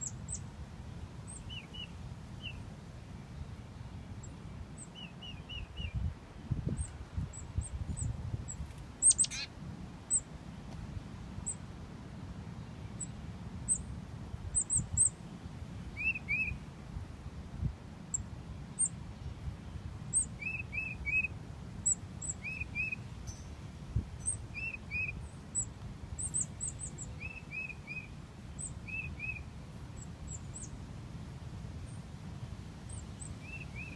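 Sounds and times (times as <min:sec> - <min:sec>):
songbirds chirping: 0:00.0 - 0:33.9.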